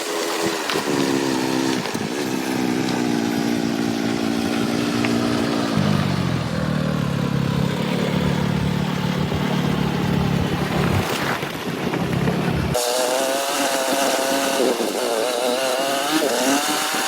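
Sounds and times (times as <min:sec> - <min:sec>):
motorcycle engine running: 0:00.0 - 0:12.8
wind noise: 0:08.3 - 0:12.8.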